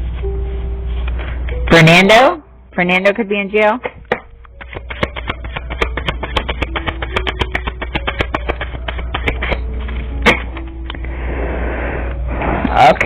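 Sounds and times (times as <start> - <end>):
low hum: 0.0 - 13.0
cards being shuffled: 3.9 - 11.0.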